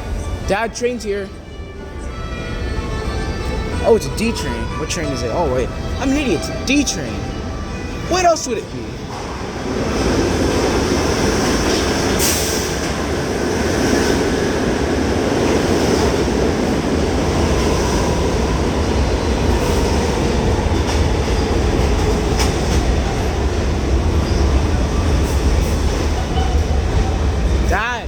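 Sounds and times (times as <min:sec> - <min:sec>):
subway train rumbling: 0:00.0 - 0:28.0
train wheels clicking: 0:19.4 - 0:27.1.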